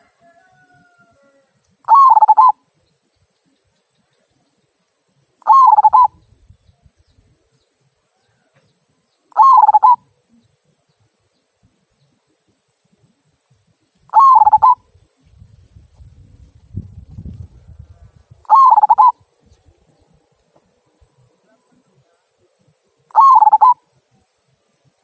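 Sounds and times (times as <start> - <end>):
dove cooing: 1.8 - 2.6, 5.4 - 6.2, 9.3 - 10.4, 14.1 - 14.8, 18.4 - 19.2, 23.1 - 23.8.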